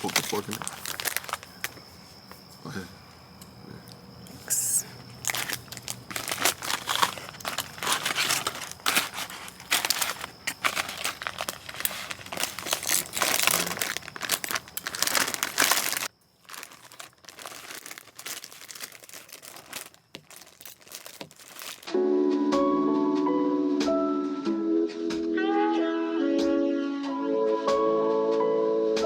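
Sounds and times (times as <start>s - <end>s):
dense crinkling and crackling: 0.0s - 2.0s, 5.0s - 21.9s
background music sustained notes: 21.9s - 29.0s.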